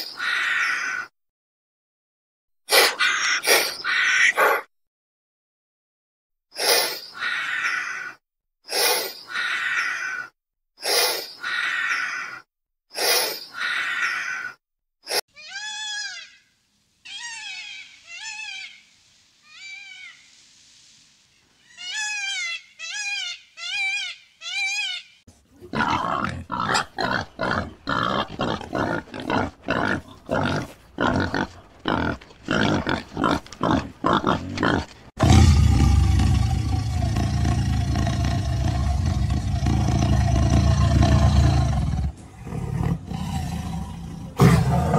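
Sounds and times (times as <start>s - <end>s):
breathy hiss: 18.1s - 21.4s
pigs grunting: 25.6s - 44.9s.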